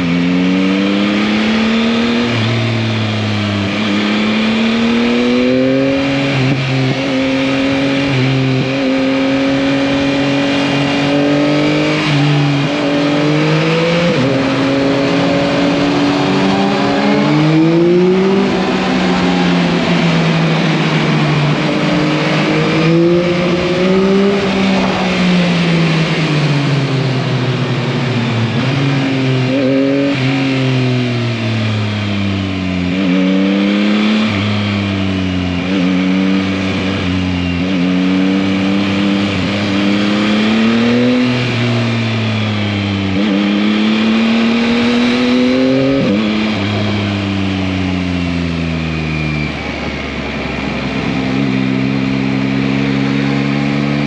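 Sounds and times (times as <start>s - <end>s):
motorcycle engine revving: 0.0s - 54.0s
steady rushing noise: 10.2s - 30.2s.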